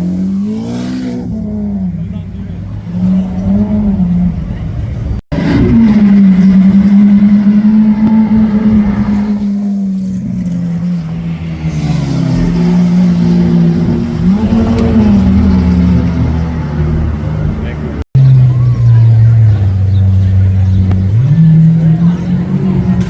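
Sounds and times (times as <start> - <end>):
car engine idling: 0.0 - 23.0
engine throttle blip: 13.7 - 16.4.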